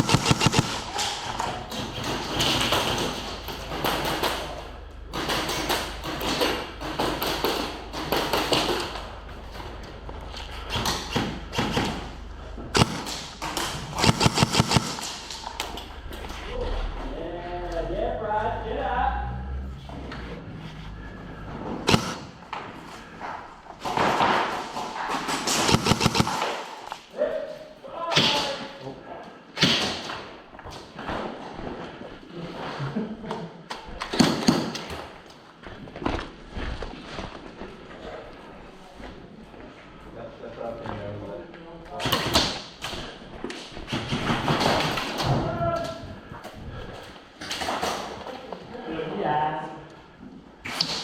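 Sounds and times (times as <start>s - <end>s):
airsoft gunshots echoing: 0.0s - 1.2s, 12.7s - 15.4s, 21.8s - 22.5s, 25.3s - 26.8s
steady low hum: 0.0s - 27.1s.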